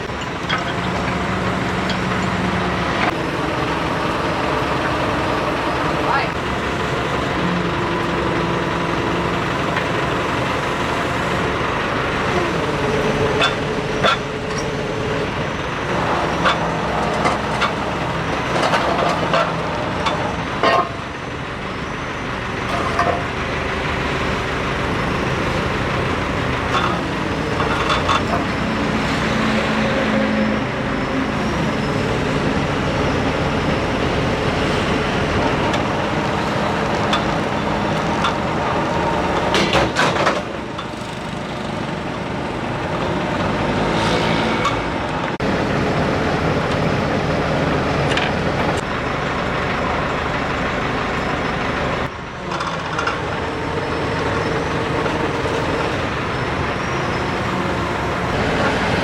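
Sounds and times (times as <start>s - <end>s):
heavy engine running: 0.0s - 59.0s.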